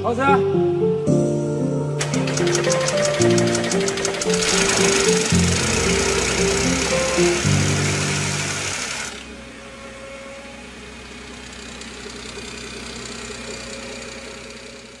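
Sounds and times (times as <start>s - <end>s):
background music: 0.0s - 9.1s
car engine idling: 2.0s - 15.0s.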